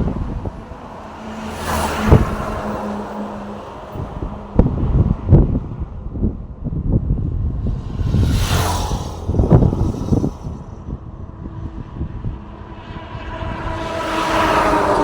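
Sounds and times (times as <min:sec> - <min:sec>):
vehicles passing on road: 0:00.0 - 0:15.0
low rumble: 0:04.0 - 0:15.0.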